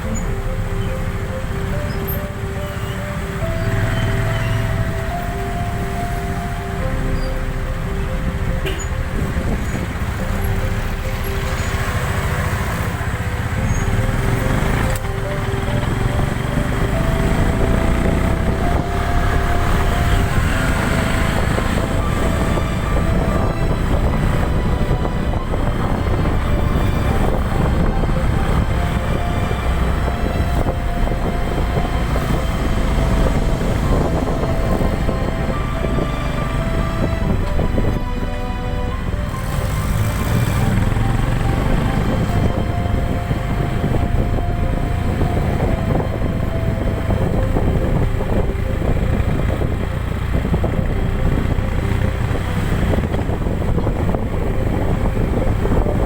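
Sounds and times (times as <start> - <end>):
soft background music: 0.0 - 56.0
vehicle engine and road noise: 0.0 - 56.0.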